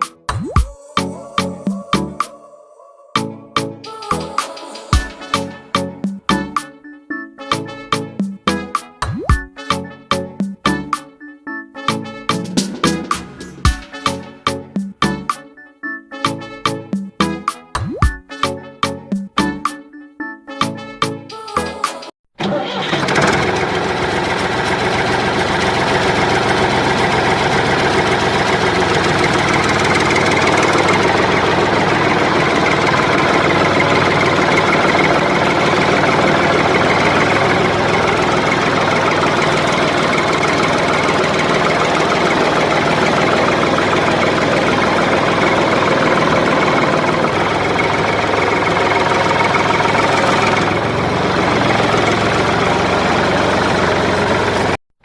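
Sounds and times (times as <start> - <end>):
model tractor engine droning: 22.4 - 54.8.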